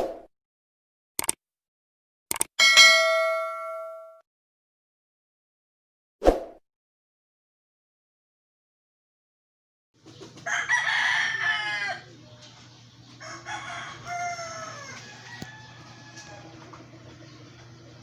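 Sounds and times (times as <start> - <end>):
sharp click: 1.2 - 1.4, 2.3 - 2.5
rooster crowing: 10.4 - 12.2, 13.2 - 16.8.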